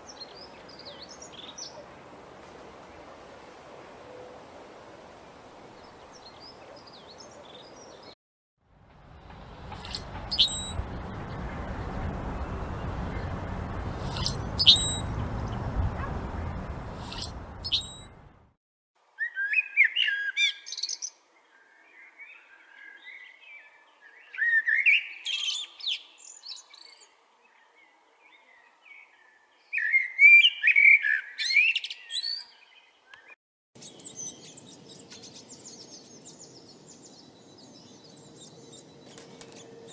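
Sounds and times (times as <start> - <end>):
bird singing phrases: 0.0 - 2.0, 5.8 - 8.2, 9.8 - 11.4, 14.0 - 15.7, 17.0 - 18.2, 19.2 - 39.9
rushing background noise: 8.8 - 18.5
high bird chirps: 9.8 - 10.9, 14.0 - 15.7, 17.0 - 18.2.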